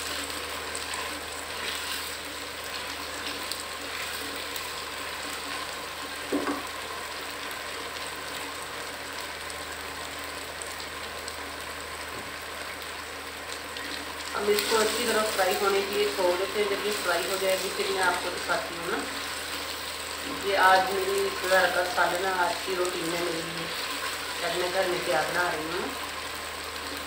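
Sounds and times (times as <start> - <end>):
spatula stirring in pan: 0.0 - 5.7
slices sizzling in oil: 0.0 - 27.0.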